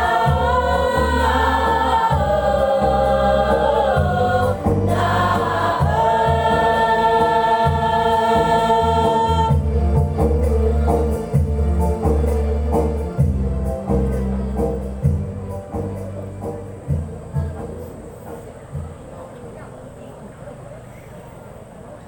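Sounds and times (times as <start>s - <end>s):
mixed choir singing held chords: 0.0s - 12.7s
amplified instrumental accompaniment: 0.0s - 17.9s.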